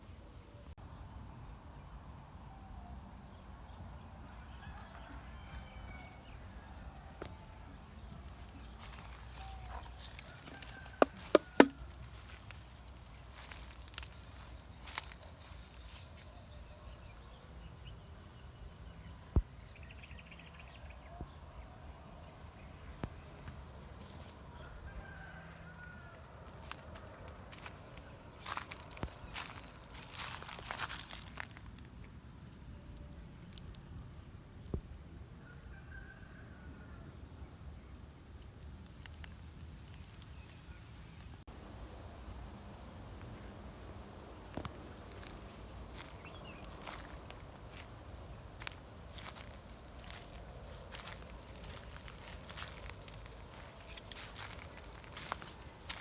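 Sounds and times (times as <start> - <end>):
faint outdoor ambience: 0.0 - 56.0
sharp knock: 11.0 - 11.8.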